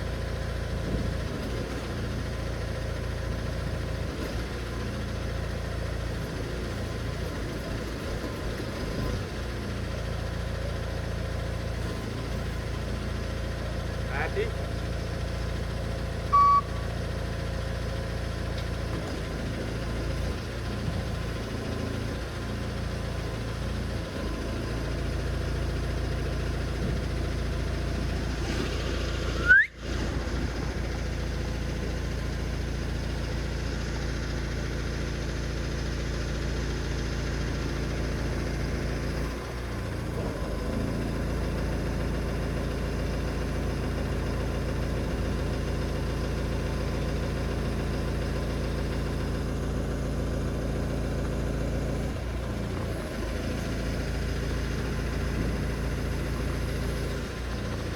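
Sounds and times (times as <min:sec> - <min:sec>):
forklift engine idling: 0:00.0 - 0:57.9
short beep: 0:16.3 - 0:16.9, 0:29.4 - 0:29.8
rising squeal: 0:29.2 - 0:30.0.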